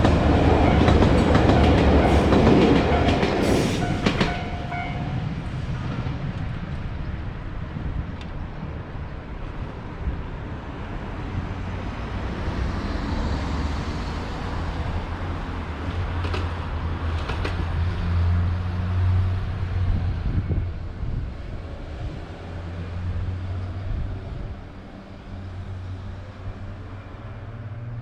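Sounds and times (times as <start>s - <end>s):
diesel train engine drone: 0.0s - 28.0s
rail rumble: 0.0s - 28.0s.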